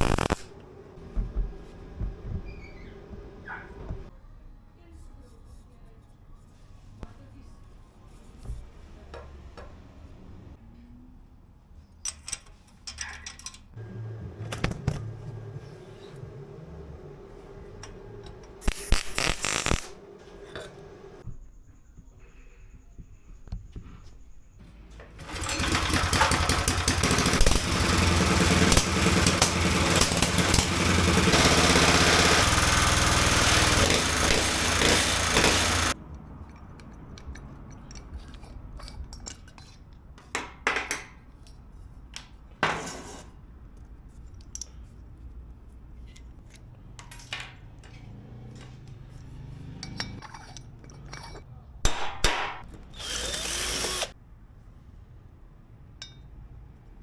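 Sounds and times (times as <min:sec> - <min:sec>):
power tool running: 0:00.0 - 0:00.7, 0:13.8 - 0:21.2, 0:25.2 - 0:36.0, 0:52.9 - 0:54.1.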